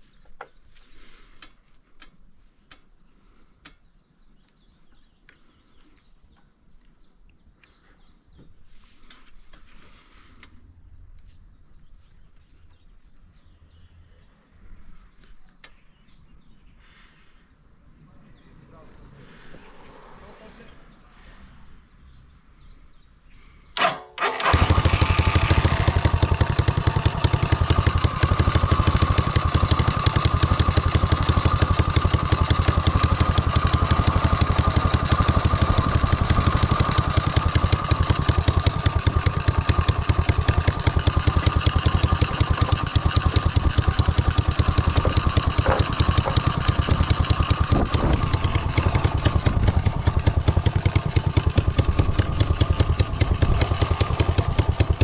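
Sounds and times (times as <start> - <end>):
engine cranking: 23.8 - 55.0
go-kart engine running: 23.8 - 55.0.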